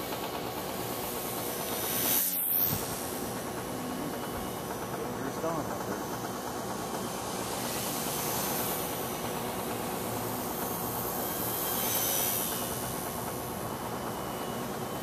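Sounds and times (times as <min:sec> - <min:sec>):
electric motor whine: 0:00.0 - 0:15.0.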